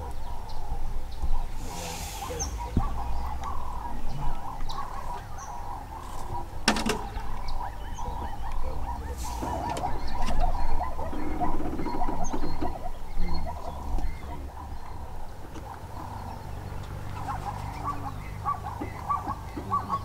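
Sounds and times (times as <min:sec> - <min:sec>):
steady low rumble: 0:00.0 - 0:19.6
wild bird calls: 0:00.0 - 0:20.0.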